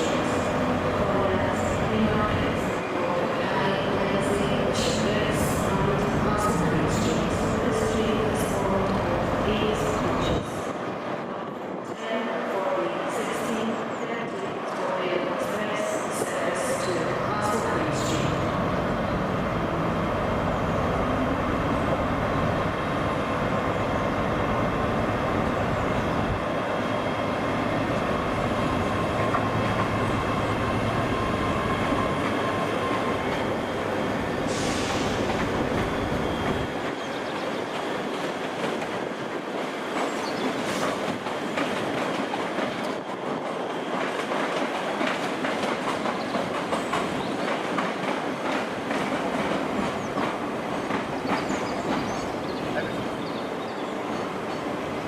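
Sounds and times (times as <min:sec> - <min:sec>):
train wheels clicking over rail joints: 0:37.8 - 0:52.2.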